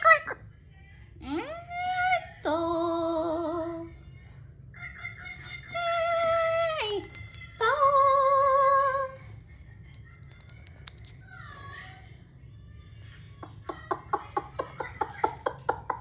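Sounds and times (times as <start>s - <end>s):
faint clicks: 9.9s - 11.2s.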